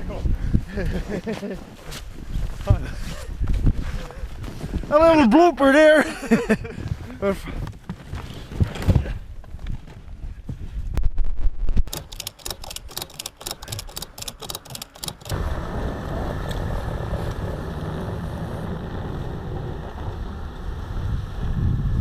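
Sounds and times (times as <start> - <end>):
sharp clicks: 11.8 - 15.4
snowmobile engine: 15.2 - 22.0.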